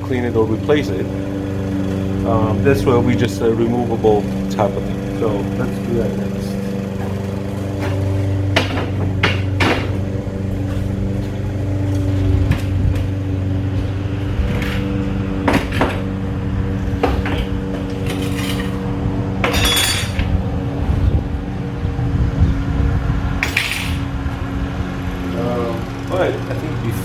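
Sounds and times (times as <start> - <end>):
metal scraping clatter: 0.0 - 20.5, 23.4 - 24.1
sharp knocks: 6.6 - 11.3
metal pieces clinking: 18.0 - 18.8, 19.4 - 20.3.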